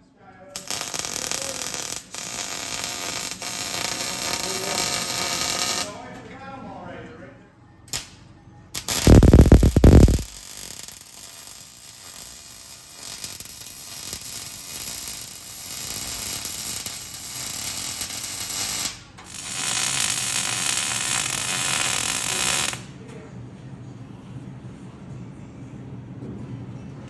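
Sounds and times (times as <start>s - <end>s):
welding arc crackling: 0.6s - 6.0s, 7.9s - 8.2s, 8.8s - 22.9s.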